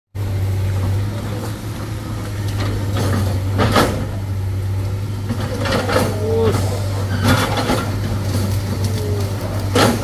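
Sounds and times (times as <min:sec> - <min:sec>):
large diesel engine running: 0:00.1 - 0:10.0.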